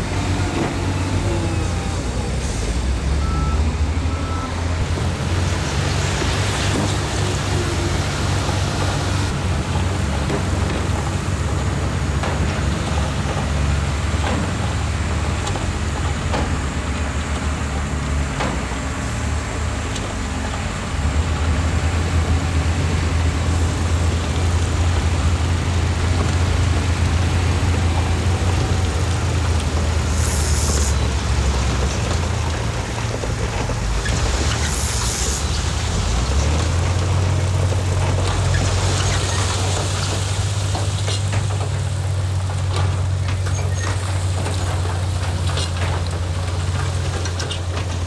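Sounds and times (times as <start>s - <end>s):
heavy diesel machinery running: 0.0s - 48.0s
short bursts of hiss: 30.1s - 31.0s.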